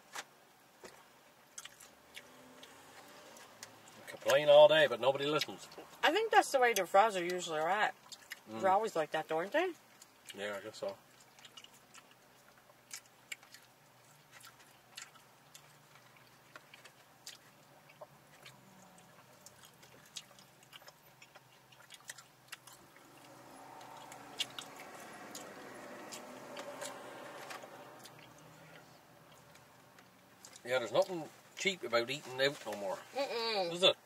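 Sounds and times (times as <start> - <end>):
chewing and eating sounds: 0.8 - 33.2.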